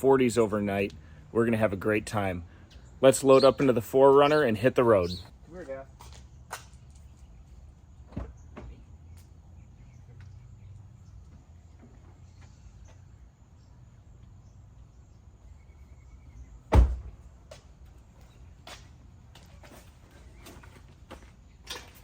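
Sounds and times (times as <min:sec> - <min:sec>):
car door shutting: 0:16.7 - 0:17.1.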